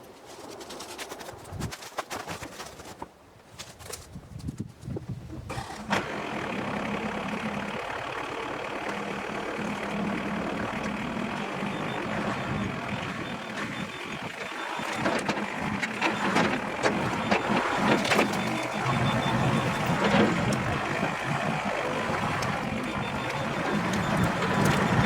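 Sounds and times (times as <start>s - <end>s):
chainsaw engine running: 5.5s - 25.0s.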